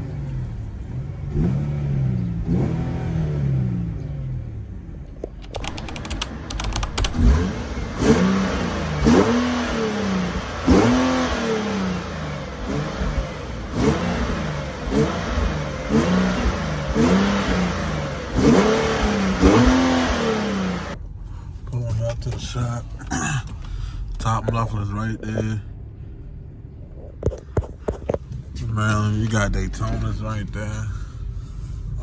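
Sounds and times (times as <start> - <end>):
car engine revving: 0.0 - 21.0, 24.2 - 32.0
quick clicks: 5.3 - 7.2.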